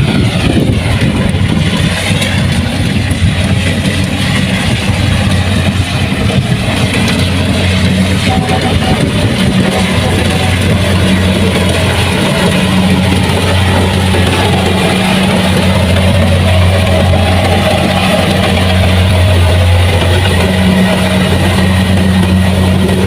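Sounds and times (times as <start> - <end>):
combine harvester engine droning: 0.0 - 23.0.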